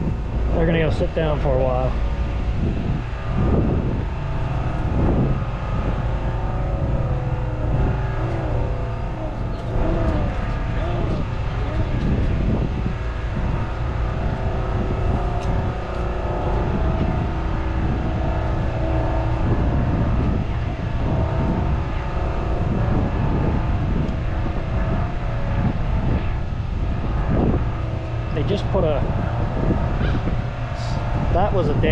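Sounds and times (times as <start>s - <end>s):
steady tones: 0.0s - 31.9s
truck diesel engines idling: 0.0s - 31.9s.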